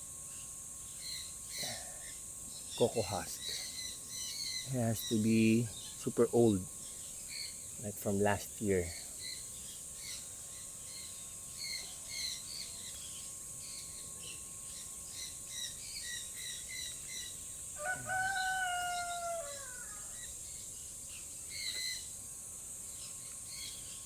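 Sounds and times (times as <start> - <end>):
high insect-like hiss: 0.0 - 24.0
small birds chirping: 0.3 - 22.2, 22.8 - 24.0
rooster crowing: 17.7 - 20.3.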